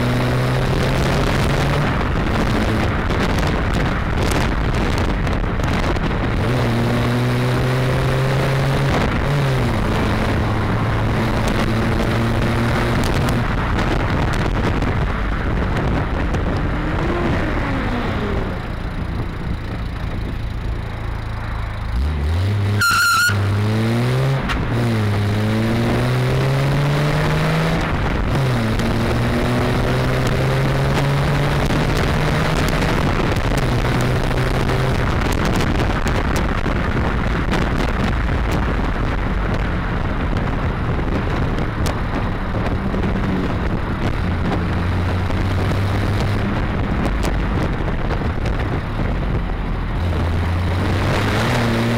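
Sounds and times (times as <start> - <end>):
car engine accelerating: 0.0 - 51.9
road and wind noise: 0.0 - 51.9
brief high squeal: 22.8 - 23.4.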